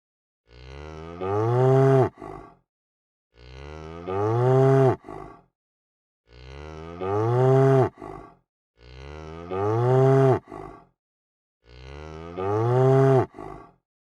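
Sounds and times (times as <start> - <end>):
cow mooing: 0.5 - 2.5, 3.4 - 5.2, 6.3 - 8.2, 8.8 - 10.6, 11.6 - 13.6.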